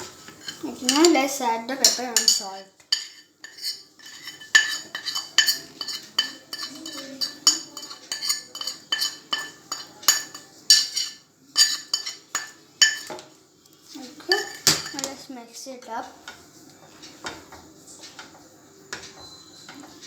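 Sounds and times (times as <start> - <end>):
metal spoon clinking on pot: 0.4 - 1.2, 1.8 - 13.2, 14.3 - 15.1.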